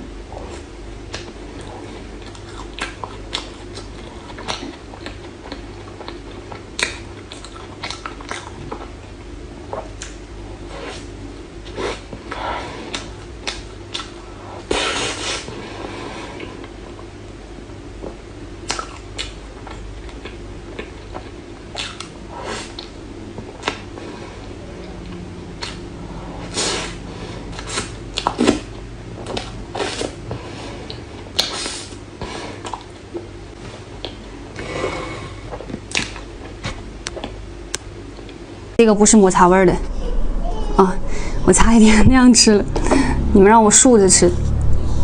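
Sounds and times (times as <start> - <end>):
steady low hum: 0.0 - 45.0
chewing smacks: 2.2 - 8.9, 12.9 - 14.2, 18.7 - 22.1
wet mouth clicks: 21.8 - 22.1.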